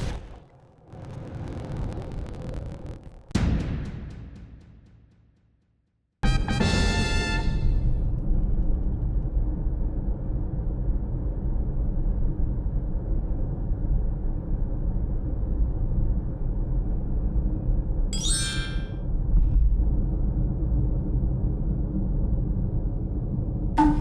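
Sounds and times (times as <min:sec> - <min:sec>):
rising electronic chirp: 0:18.2 - 0:19.0.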